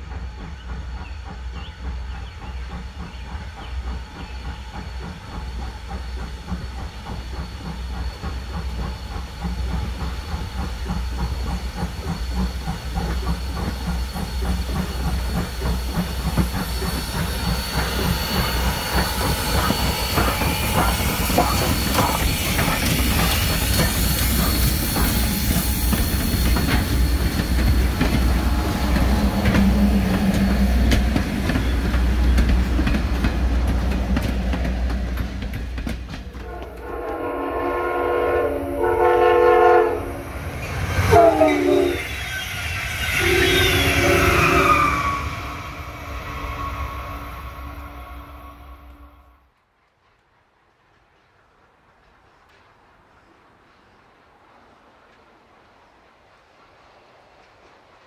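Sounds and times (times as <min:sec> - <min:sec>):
train wheels clattering on rails: 0:00.0 - 0:47.7
locomotive horn blasts: 0:36.4 - 0:40.3, 0:41.1 - 0:42.0.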